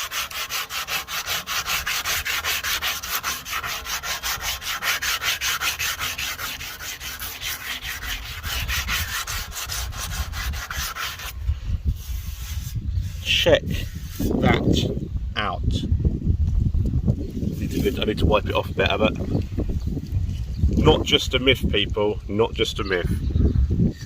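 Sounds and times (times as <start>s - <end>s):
foil scrubbing metal bumper: 0.0s - 11.4s, 12.0s - 14.4s.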